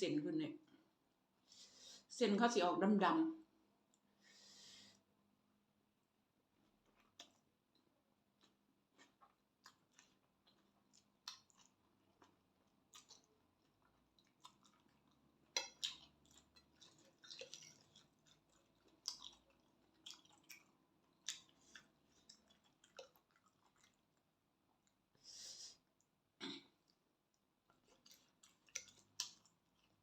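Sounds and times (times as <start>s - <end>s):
person chewing food: 6.5s - 25.2s, 25.8s - 30.0s.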